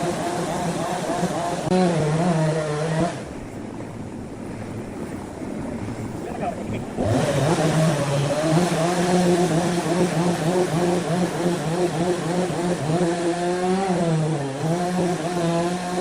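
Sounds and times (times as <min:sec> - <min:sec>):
chainsaw cutting wood: 0:00.0 - 0:03.3, 0:07.0 - 0:16.0.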